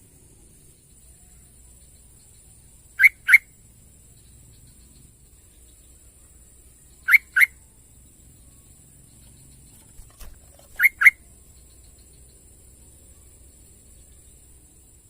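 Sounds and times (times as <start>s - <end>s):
bird whistled notes: 7.0s - 7.6s, 10.7s - 11.2s.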